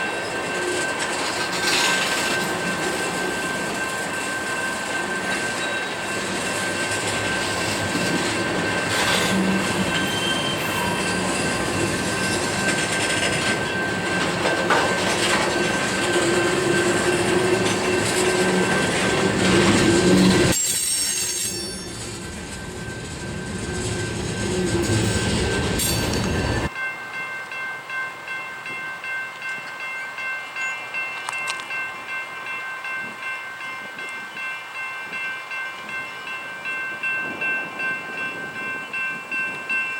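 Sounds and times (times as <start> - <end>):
freight train cars rolling: 0.0 - 26.7
steel wheels squealing: 0.0 - 26.7
wheels clacking over rail joints: 0.3 - 26.7.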